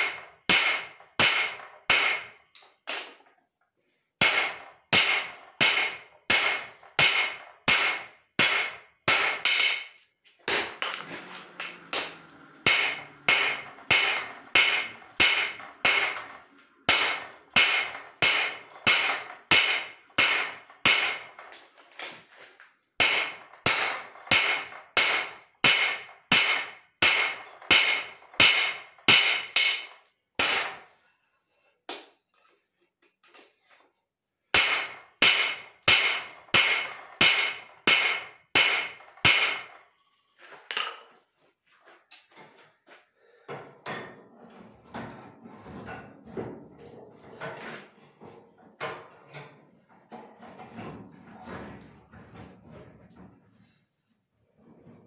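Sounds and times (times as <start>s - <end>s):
hammer striking steel on anvil: 0.0s - 3.2s, 4.2s - 21.4s, 23.0s - 30.9s, 34.5s - 39.7s.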